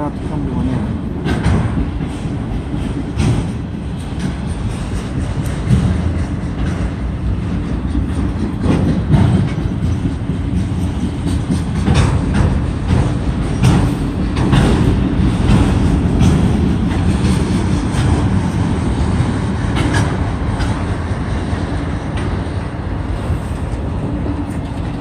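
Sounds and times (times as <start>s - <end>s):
train wheels rumbling on rails: 0.0s - 25.0s
wheels clacking over track: 1.0s - 22.6s.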